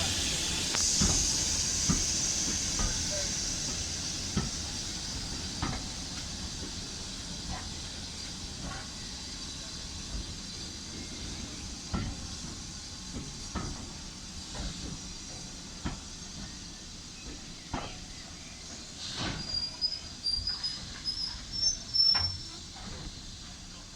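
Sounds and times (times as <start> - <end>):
steam locomotive hissing: 0.0 - 23.9
train clanks and knocks: 0.0 - 23.9.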